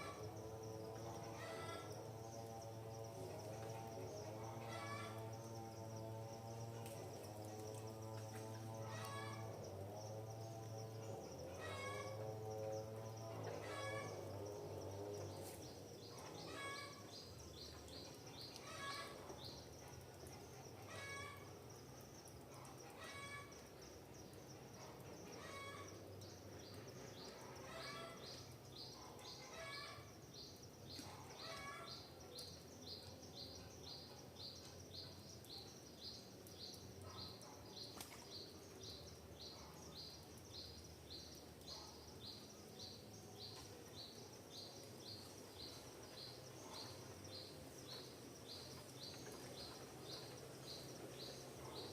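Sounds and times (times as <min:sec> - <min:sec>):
low background hum: 0:00.0 - 0:51.9.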